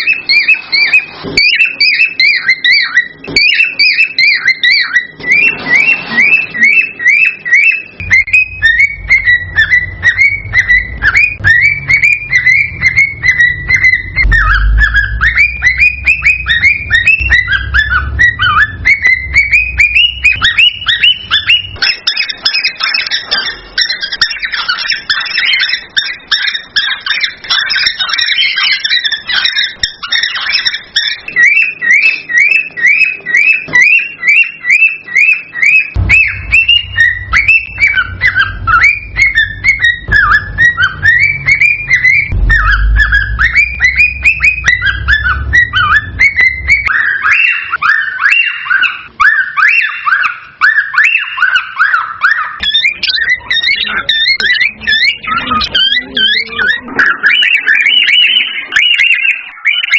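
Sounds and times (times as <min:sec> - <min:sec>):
cockatiel whistling and chirping: 0:00.0 - 0:59.9
low hum: 0:08.0 - 0:22.0, 0:36.0 - 0:47.8.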